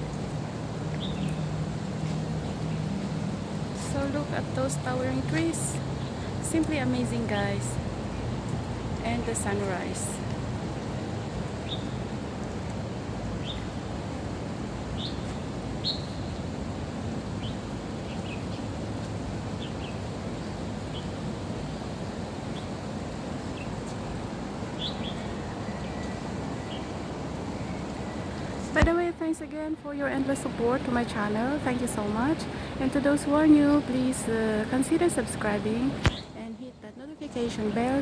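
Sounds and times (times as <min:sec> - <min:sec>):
birds chirping: 0:30.0 - 0:38.0.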